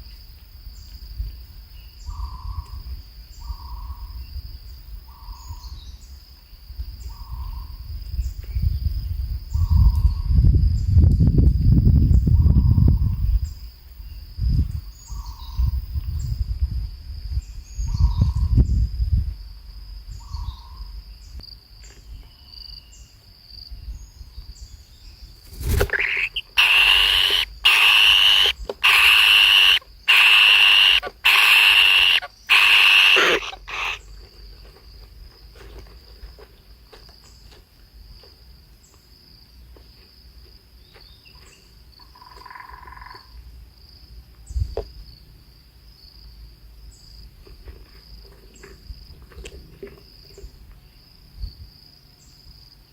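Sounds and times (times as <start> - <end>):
high-pitched insect drone: 25.6 - 34.1
harsh animal calls: 25.7 - 34.1.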